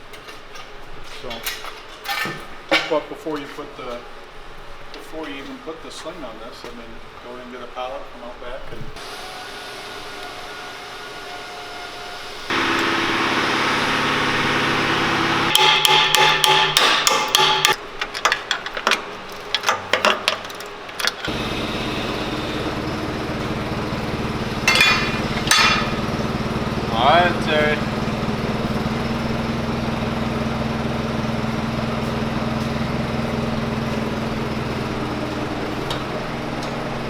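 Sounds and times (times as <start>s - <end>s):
machine hum: 9.0s - 15.7s, 21.3s - 37.0s
hammer blows: 9.0s - 17.8s, 21.3s - 37.0s
low engine-like drone: 21.3s - 37.0s.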